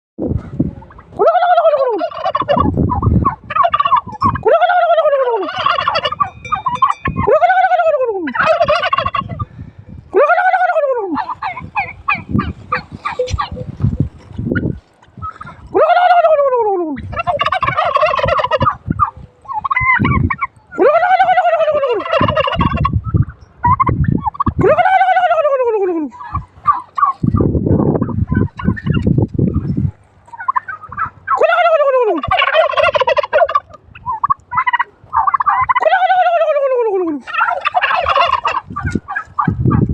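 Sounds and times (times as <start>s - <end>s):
turkeys gobbling: 0.8s - 9.5s, 10.2s - 14.1s, 15.2s - 29.7s, 30.3s - 39.9s.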